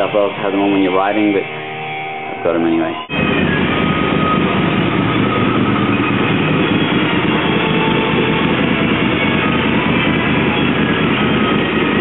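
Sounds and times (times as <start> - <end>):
motorcycle engine rumble: 3.0 - 12.0.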